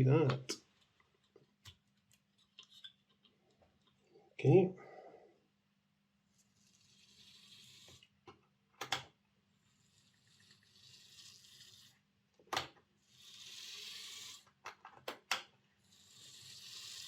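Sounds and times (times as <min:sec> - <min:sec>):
model train motor whirring: 0:06.7 - 0:08.0, 0:13.1 - 0:14.4, 0:15.9 - 0:17.0.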